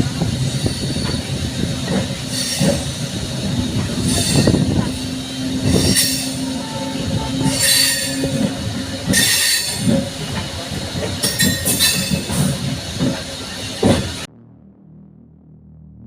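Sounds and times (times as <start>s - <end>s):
train rumble and wheel clatter: 0.0s - 14.3s
high-pitched wheel screech: 4.0s - 8.5s.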